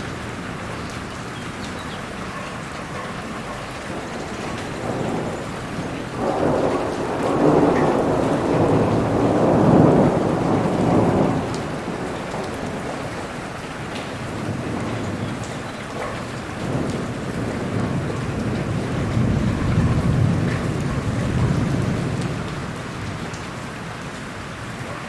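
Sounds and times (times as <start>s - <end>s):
steady rain: 0.0s - 25.0s
long roll of thunder: 3.8s - 15.5s, 16.5s - 23.6s.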